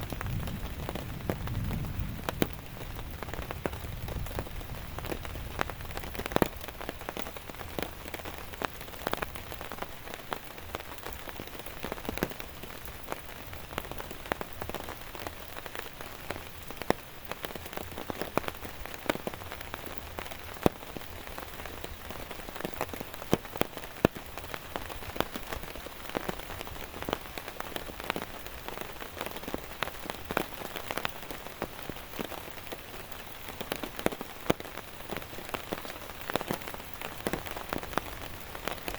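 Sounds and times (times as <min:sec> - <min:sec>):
raindrops ticking on a surface: 0:00.0 - 0:38.9
steady rain hiss: 0:00.0 - 0:38.9.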